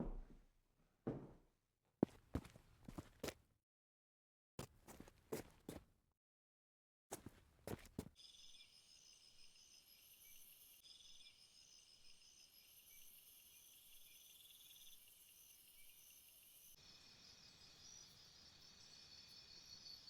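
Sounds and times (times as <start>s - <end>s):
insects trilling and pulsing: 8.2s - 20.0s.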